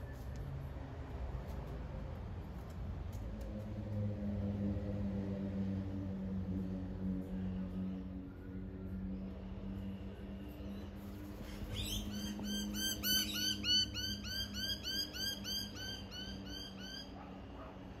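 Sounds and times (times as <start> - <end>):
bird calling sharp notes: 11.8 - 17.1.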